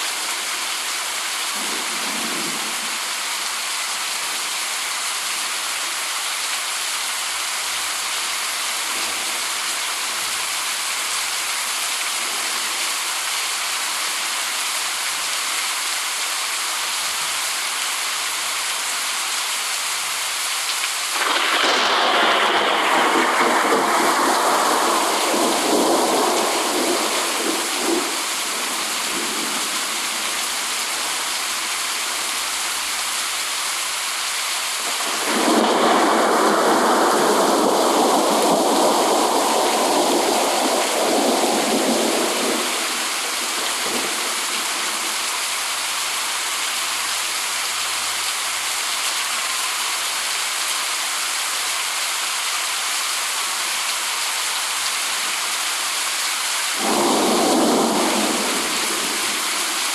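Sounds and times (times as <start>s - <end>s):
heavy rain hissing: 0.0s - 59.9s
thunder rolling: 21.2s - 28.1s, 35.1s - 44.4s, 56.8s - 59.8s.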